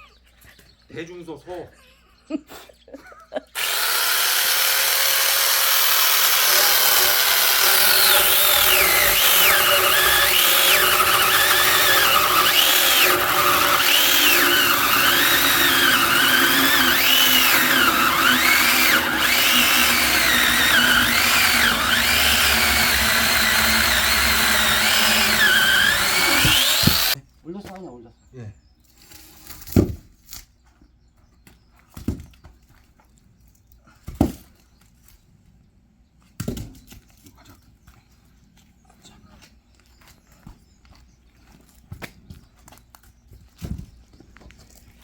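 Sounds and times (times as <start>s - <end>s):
chainsaw cutting wood: 3.6s - 27.2s.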